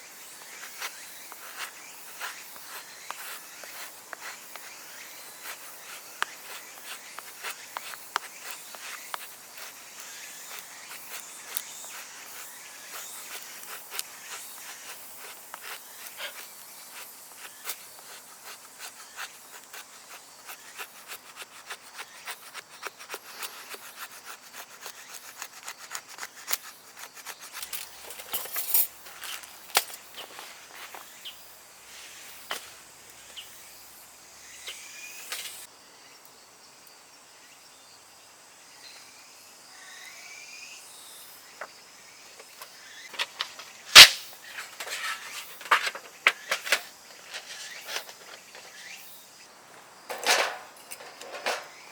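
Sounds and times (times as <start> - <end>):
rapid dry scratching clicks: 0.6 - 28.5.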